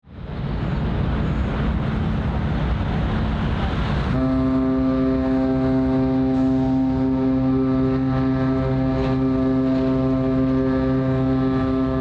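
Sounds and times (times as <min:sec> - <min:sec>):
wind-like noise: 0:00.0 - 0:05.2
ship's horn blast: 0:04.0 - 0:12.0.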